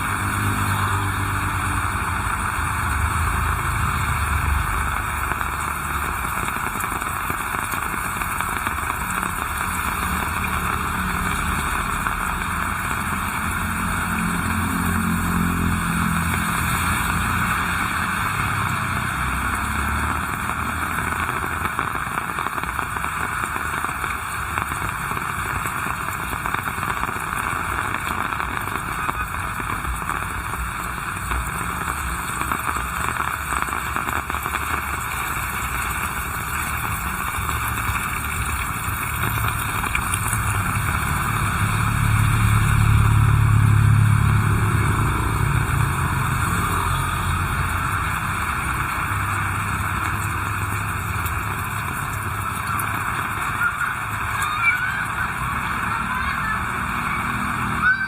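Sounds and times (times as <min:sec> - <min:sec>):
heavy rain: 0:00.0 - 0:58.0
low traffic rumble: 0:00.0 - 0:58.0.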